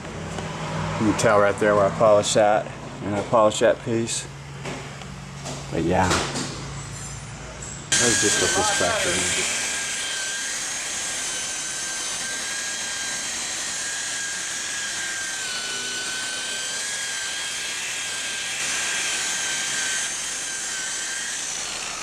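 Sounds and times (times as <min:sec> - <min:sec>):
machine polisher whine: 0:07.9 - 0:22.0.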